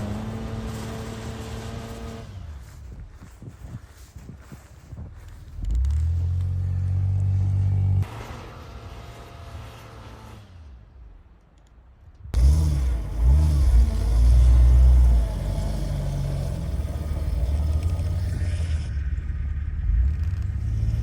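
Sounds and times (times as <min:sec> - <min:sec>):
engine revving: 0:00.0 - 0:02.8, 0:05.6 - 0:11.0, 0:12.4 - 0:21.0
quieter engine sound: 0:00.0 - 0:21.0.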